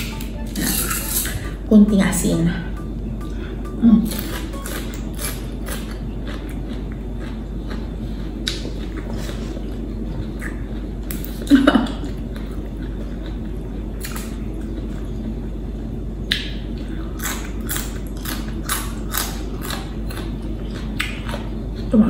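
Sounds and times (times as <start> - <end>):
steady low hum: 0.0 - 22.0
crunchy vegetable chewing: 4.0 - 15.5, 16.3 - 22.0.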